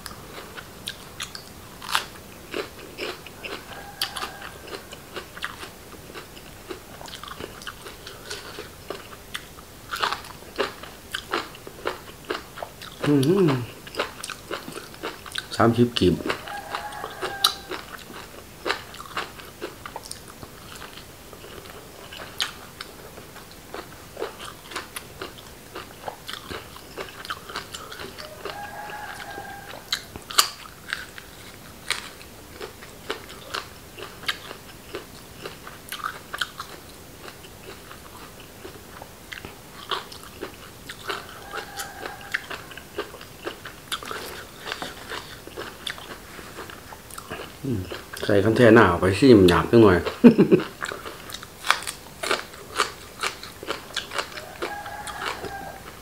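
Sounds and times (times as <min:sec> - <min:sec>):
person chewing food: 0:00.0 - 0:48.6, 0:49.5 - 0:56.0.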